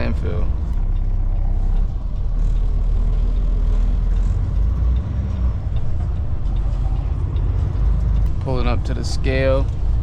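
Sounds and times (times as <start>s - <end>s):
diesel truck engine rumble: 0.0s - 10.0s
road noise: 0.0s - 10.0s.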